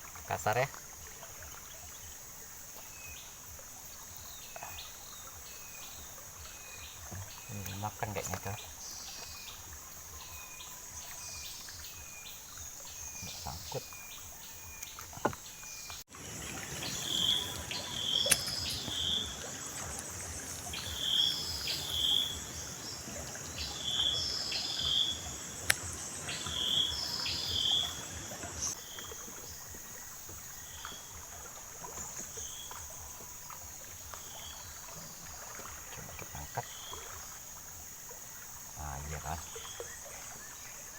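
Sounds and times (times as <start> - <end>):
high insect drone: 0.0 - 40.9
sharp clicks: 18.2 - 19.0.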